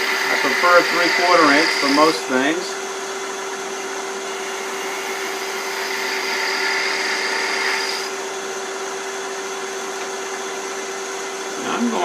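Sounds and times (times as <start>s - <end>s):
gouge cutting spinning wood: 0.0s - 2.4s, 4.4s - 8.3s
lathe motor whine: 0.0s - 12.0s.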